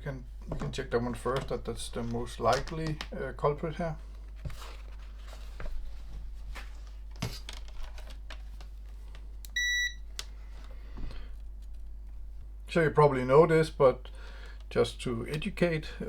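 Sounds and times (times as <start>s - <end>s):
steady low hum: 0.0s - 16.0s
multimeter high beep: 9.6s - 10.0s.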